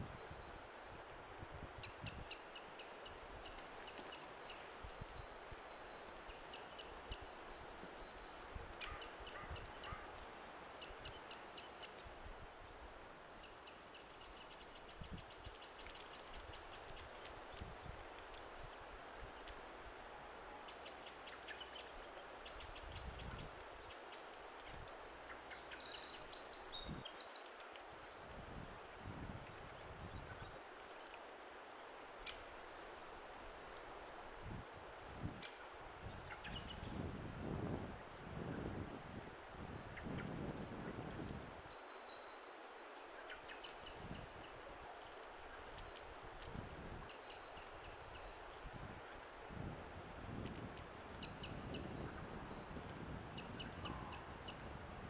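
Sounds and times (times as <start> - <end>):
birdsong: 8.8 - 10.2.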